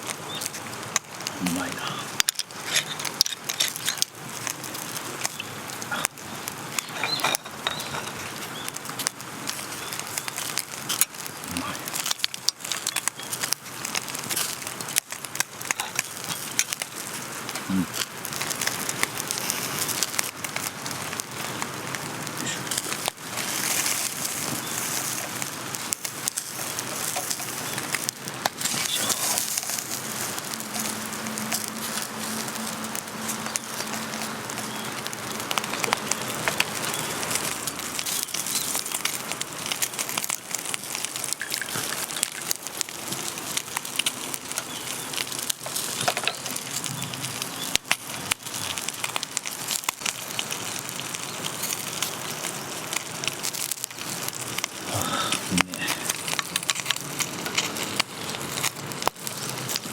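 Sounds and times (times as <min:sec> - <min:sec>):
steady rain falling: 0:00.0 - 0:59.9
wood fire crackling and popping: 0:00.0 - 0:59.9.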